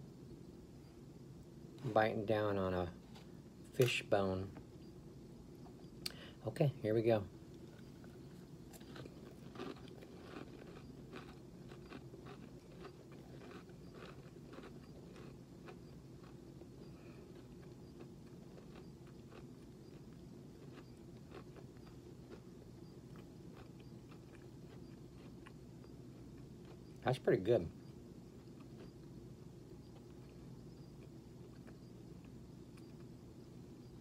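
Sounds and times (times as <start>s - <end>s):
low steady hum: 0.0s - 34.0s
person chewing a cracker: 7.5s - 27.0s, 28.3s - 33.2s.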